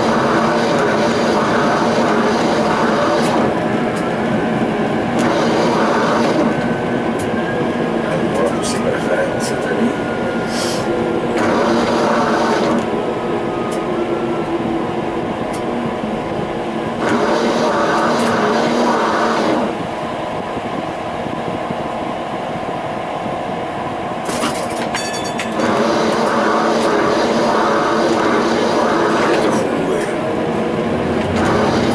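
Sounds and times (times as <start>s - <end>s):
wheels rolling on rails: 24.2s - 31.9s
electric motor whine: 31.3s - 31.9s.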